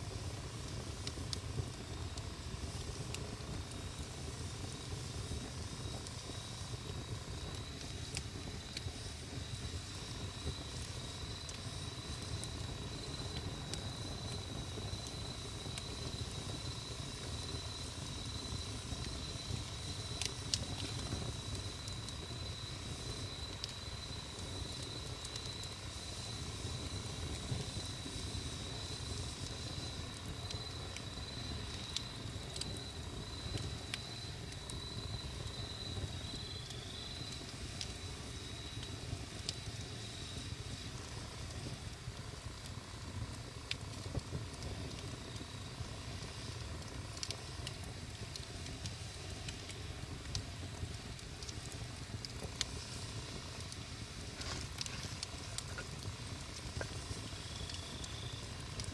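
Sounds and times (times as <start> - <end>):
campfire crackling: 0.0 - 58.9
high-pitched insect trill: 5.8 - 41.3, 52.8 - 58.7.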